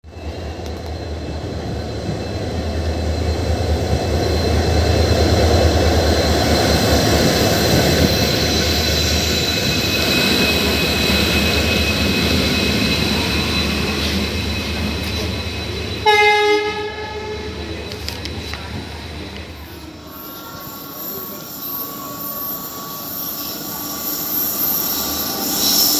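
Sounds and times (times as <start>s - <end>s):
train rumbling past: 0.0s - 25.9s
high wheel whine on rails: 0.1s - 25.9s
locomotive horn blast: 16.0s - 17.6s.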